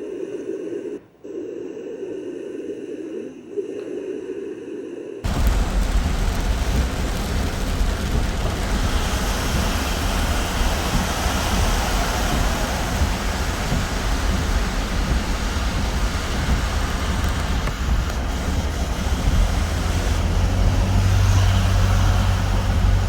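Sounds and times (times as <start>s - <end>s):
heavy rainstorm: 5.2s - 23.0s
strong low rumble: 5.2s - 23.0s
flooding water: 5.3s - 23.0s.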